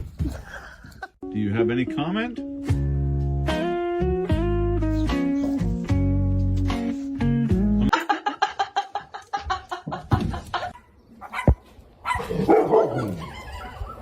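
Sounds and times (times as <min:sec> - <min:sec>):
guitar music: 0:01.2 - 0:07.9
dog yipping and barking: 0:10.8 - 0:14.0.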